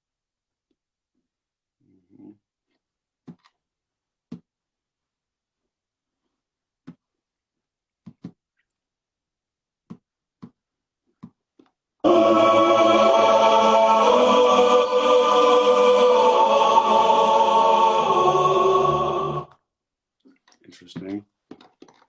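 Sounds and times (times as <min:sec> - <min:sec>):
choir-like held chords: 0:12.0 - 0:19.6.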